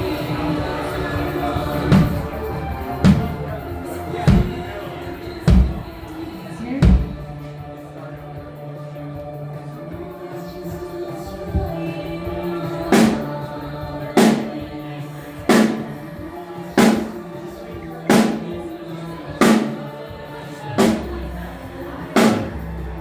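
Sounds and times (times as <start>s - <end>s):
single drum hits: 3.0s - 3.5s, 4.3s - 4.7s, 5.5s - 5.9s, 6.8s - 7.4s, 13.0s - 13.3s, 20.8s - 21.2s, 22.2s - 22.6s.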